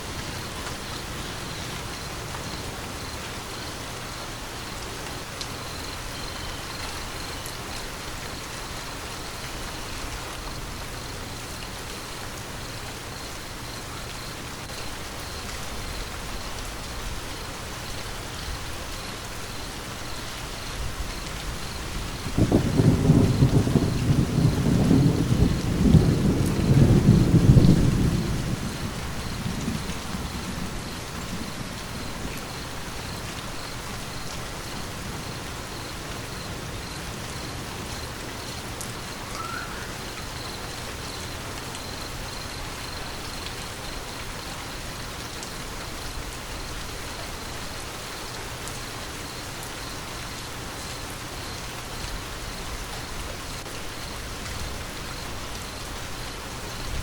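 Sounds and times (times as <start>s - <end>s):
steady rain falling: 0.0s - 57.0s
low roll of thunder: 22.0s - 33.2s.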